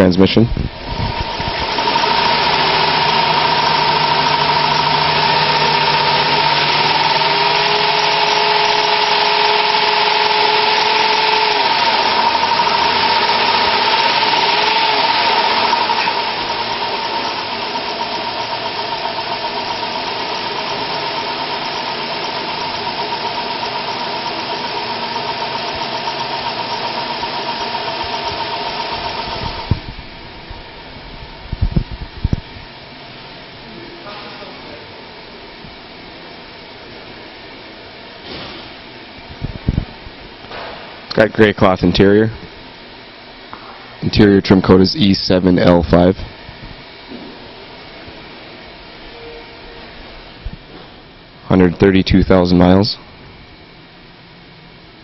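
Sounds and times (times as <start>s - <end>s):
high whine: 0.0s - 33.0s
car engine idling: 0.9s - 30.4s.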